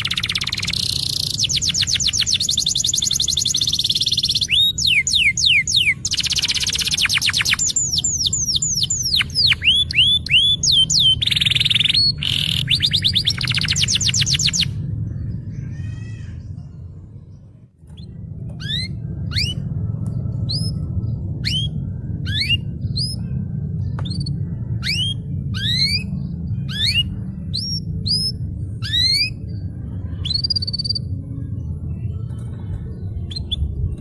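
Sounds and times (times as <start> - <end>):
canary singing whistled notes: 0.0 - 14.7, 17.9 - 19.7, 21.4 - 23.3, 24.0 - 31.1
steady low hum: 0.0 - 34.0.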